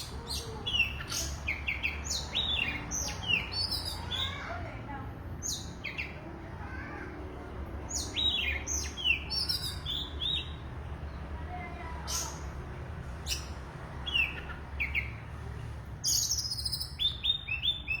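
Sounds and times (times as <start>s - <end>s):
songbird singing whistles and trills: 16.0s - 18.0s.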